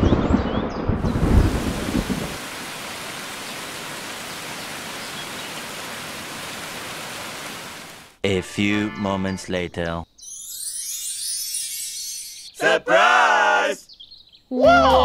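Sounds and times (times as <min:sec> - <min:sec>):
thunder rumbling: 0:00.0 - 0:04.2
steady rain: 0:00.9 - 0:08.2.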